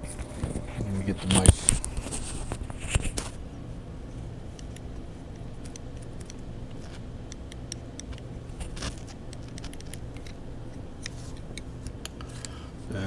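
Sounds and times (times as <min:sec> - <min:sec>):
low steady hum: 0:00.0 - 0:13.0
small parts clicking and tapping: 0:04.0 - 0:12.7.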